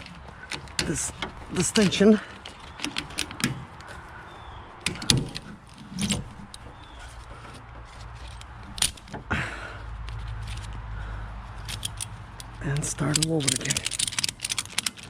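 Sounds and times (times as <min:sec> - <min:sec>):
ratchet strap metallic clicks: 0:08.2 - 0:09.2, 0:11.6 - 0:15.0.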